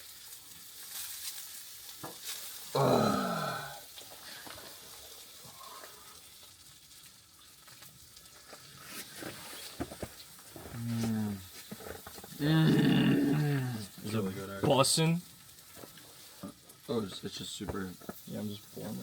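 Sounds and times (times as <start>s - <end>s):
food sizzling in a frying pan: 0.0s - 19.0s
man groaning: 2.7s - 3.9s, 12.4s - 14.0s.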